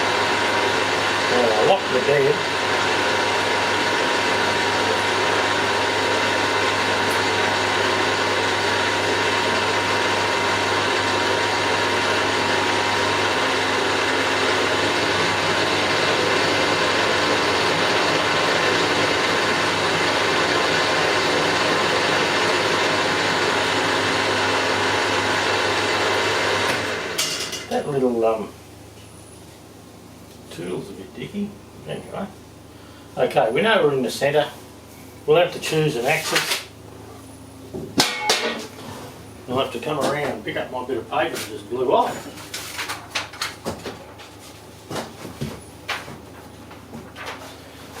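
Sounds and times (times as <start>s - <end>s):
milling machine whirring: 0.0s - 27.9s.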